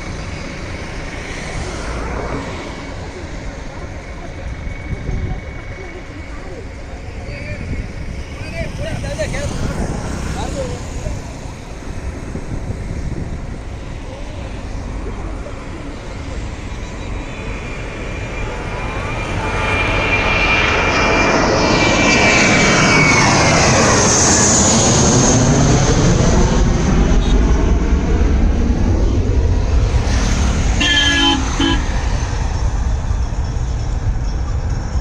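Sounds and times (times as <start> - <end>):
jet engines whining: 0.0 - 35.0
short horn honk: 30.8 - 31.9.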